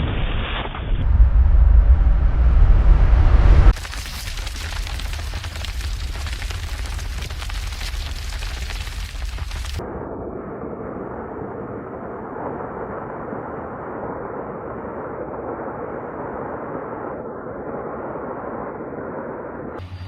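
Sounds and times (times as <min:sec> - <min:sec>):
floodwater rushing: 0:03.8 - 0:09.8.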